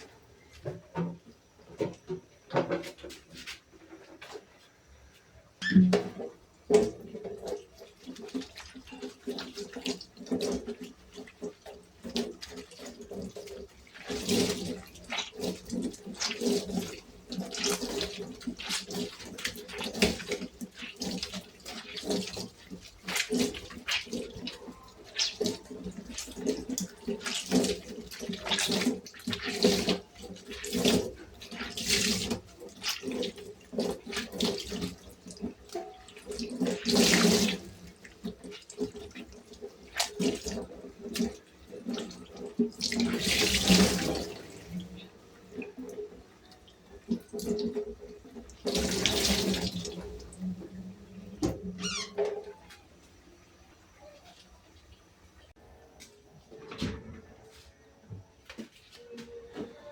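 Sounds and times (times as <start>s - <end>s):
tap water splashing in sink: 5.6s - 52.5s.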